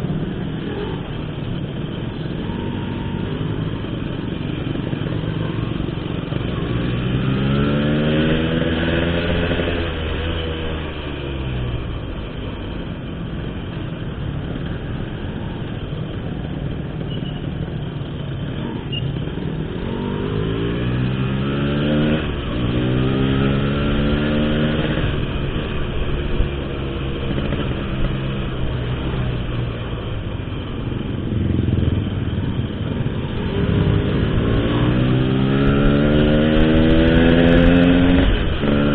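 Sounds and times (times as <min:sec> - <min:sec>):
motorcycle exhaust revving: 0:19.4 - 0:38.9.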